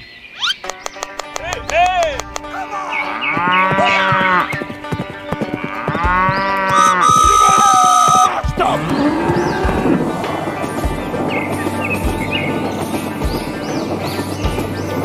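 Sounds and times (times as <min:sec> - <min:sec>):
cow mooing: 0:03.0 - 0:04.5, 0:05.6 - 0:10.2
steady high tone: 0:06.8 - 0:08.4.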